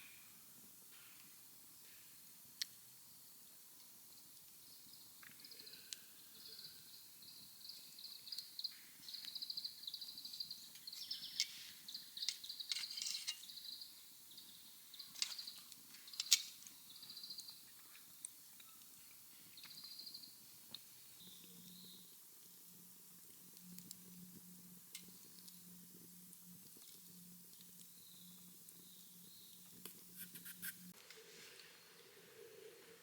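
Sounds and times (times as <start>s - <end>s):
wood fire crackling: 2.2s - 5.6s, 6.2s - 30.2s
small birds trilling: 5.4s - 20.3s.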